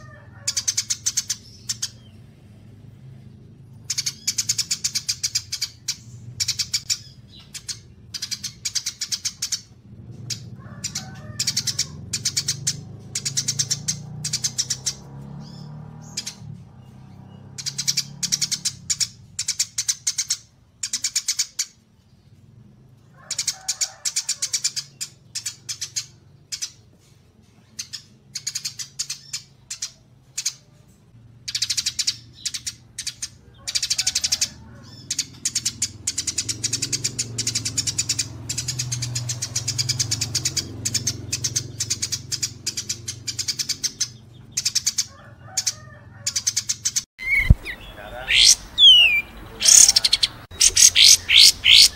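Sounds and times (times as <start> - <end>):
songbirds chirping trills: 0.0 - 51.9.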